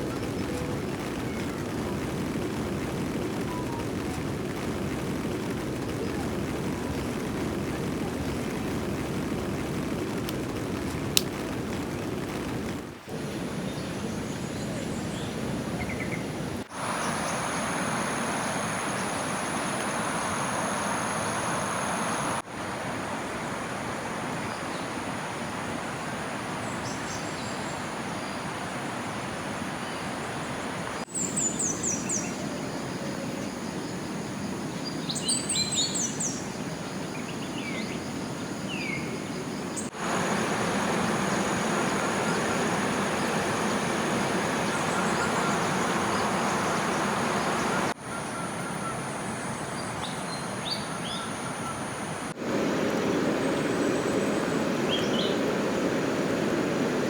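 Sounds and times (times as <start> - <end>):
birds chirping: 0.0 - 22.4, 23.3 - 57.0
rushing water: 0.0 - 57.0
high insect drone: 13.1 - 57.0.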